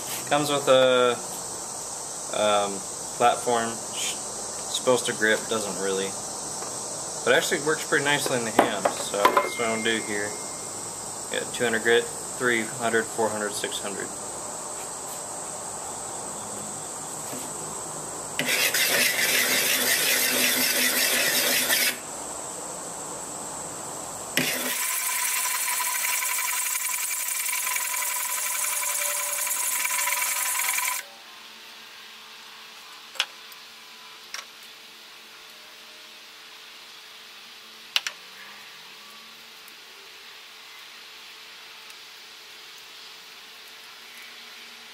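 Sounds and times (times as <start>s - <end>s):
crickets chirping: 0.0s - 44.9s
steady whine: 4.8s - 14.2s, 24.4s - 31.0s
metal rasping while sharpening: 18.4s - 22.0s.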